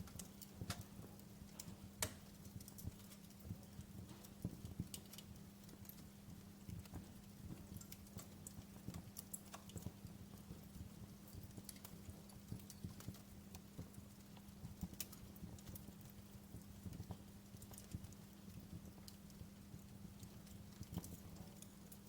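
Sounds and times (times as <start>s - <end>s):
low steady hum: 0.0s - 22.0s
wood fire crackling: 0.0s - 22.0s.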